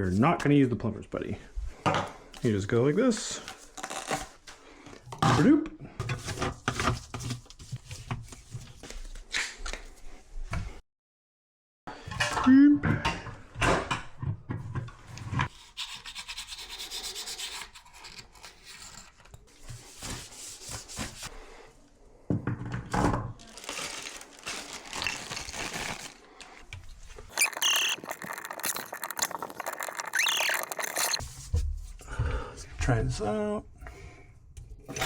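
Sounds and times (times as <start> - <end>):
plumbing parts rubbing and scraping: 26.8 - 31.7.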